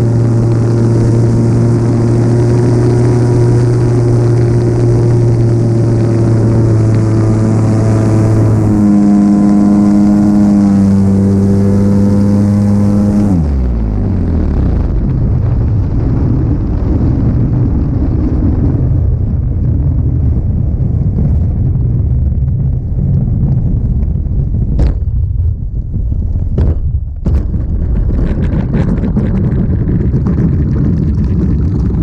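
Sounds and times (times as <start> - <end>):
model airplane engine: 0.0 - 19.1
wind buffeting microphone: 0.0 - 32.0
sharp knocks: 24.8 - 25.2, 26.6 - 29.2.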